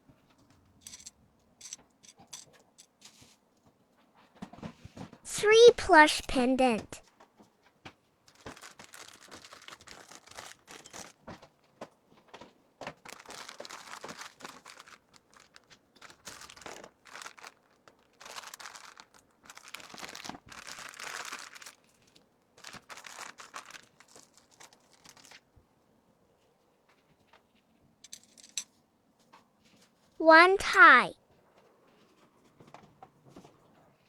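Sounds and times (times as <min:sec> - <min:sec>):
plastic packaging crinkling: 0:08.3 - 0:11.4, 0:12.8 - 0:25.4.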